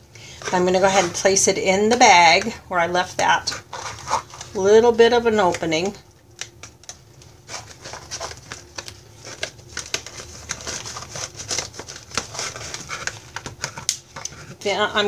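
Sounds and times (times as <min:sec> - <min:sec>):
plastic bag crinkling: 0:03.5 - 0:15.0.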